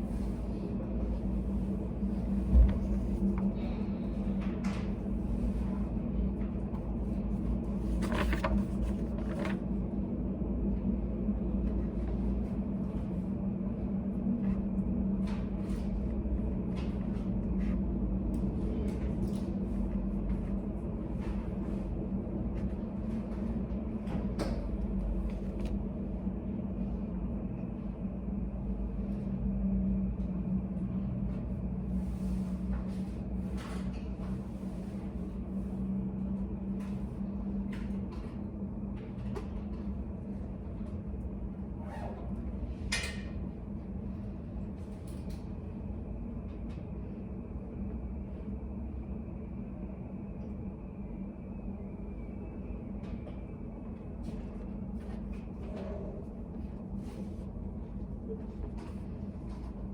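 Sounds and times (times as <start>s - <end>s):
low room hum: 0.0s - 59.9s.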